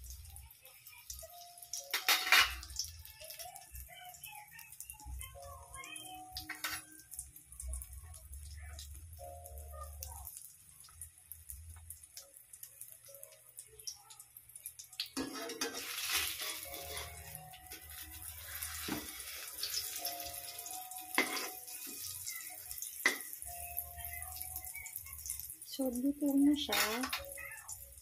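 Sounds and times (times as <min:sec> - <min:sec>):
omelette sizzling in oil: 0:00.0 - 0:28.0
metal spatula scraping wok: 0:15.2 - 0:20.3.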